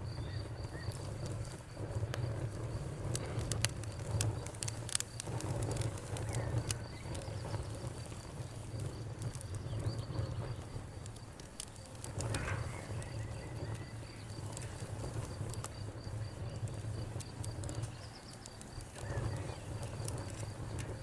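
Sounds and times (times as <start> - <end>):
cricket chirping: 0.0 - 21.0
wood fire crackling and popping: 0.0 - 21.0.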